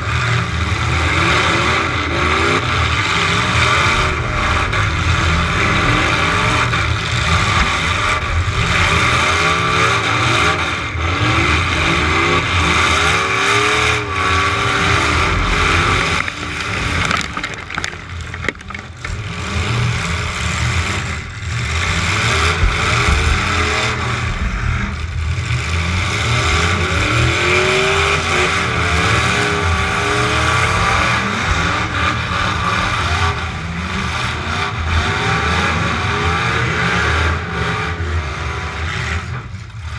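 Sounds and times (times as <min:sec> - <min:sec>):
truck engine revving: 0:00.0 - 0:39.9.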